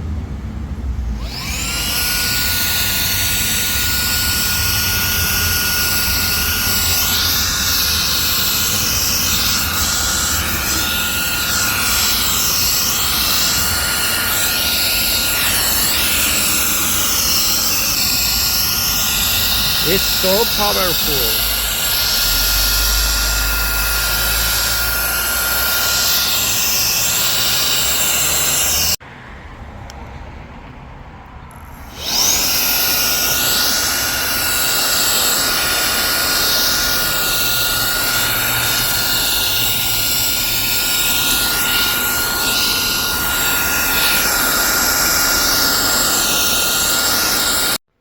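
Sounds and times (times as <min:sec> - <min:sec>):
vacuum blower motor whining: 0:01.0 - 0:29.0, 0:31.5 - 0:47.9.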